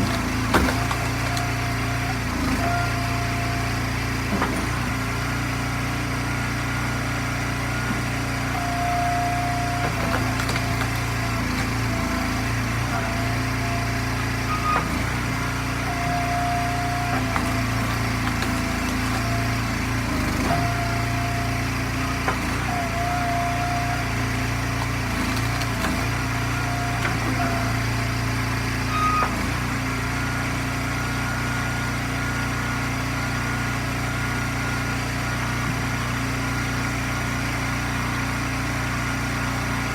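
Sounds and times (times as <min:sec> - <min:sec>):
small gas engine running: 0:00.0 - 0:39.9.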